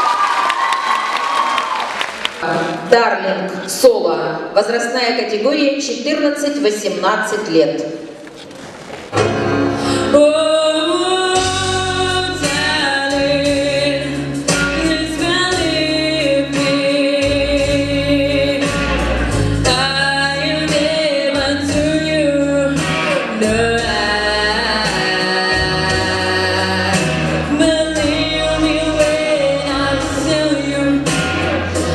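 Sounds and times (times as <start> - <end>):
steady bass line: 11.4 - 31.9.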